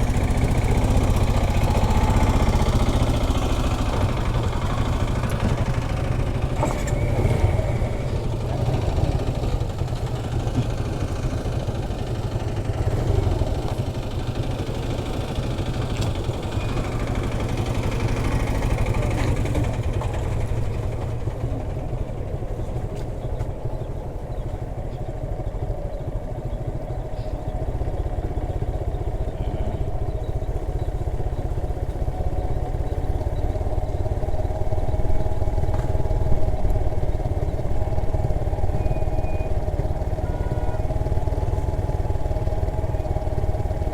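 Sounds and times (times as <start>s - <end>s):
motorcycle engine braking: 0.0s - 26.2s, 27.2s - 43.9s.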